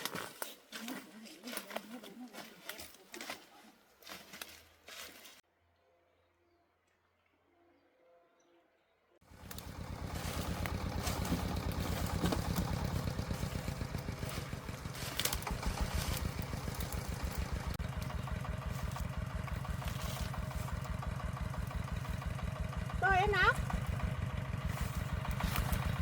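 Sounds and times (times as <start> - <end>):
diesel engine running: 9.2 - 26.0.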